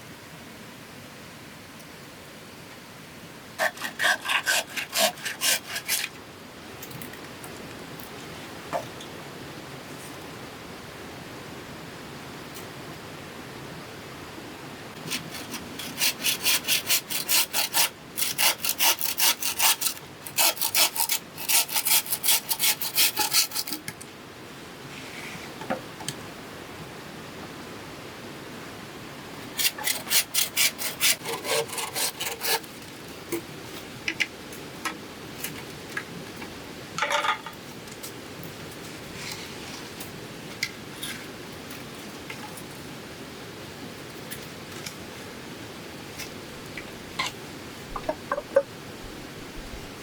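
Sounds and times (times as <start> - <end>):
hand saw cutting bamboo: 3.6 - 6.2, 15.0 - 23.8, 29.6 - 32.8.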